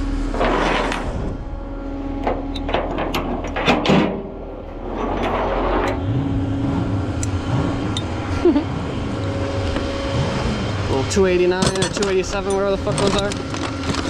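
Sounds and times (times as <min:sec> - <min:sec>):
vehicle engine running: 0:00.0 - 0:14.0
sharp knocks and clanks: 0:02.2 - 0:06.1, 0:11.4 - 0:14.0.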